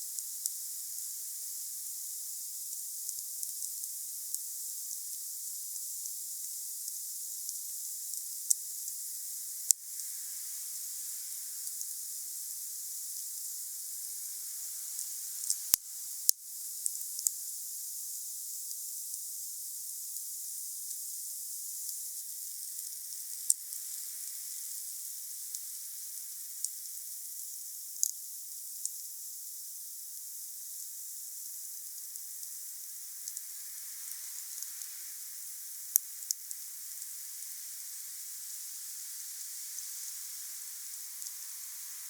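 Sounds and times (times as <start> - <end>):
bonfire hissing: 31.6 - 42.0.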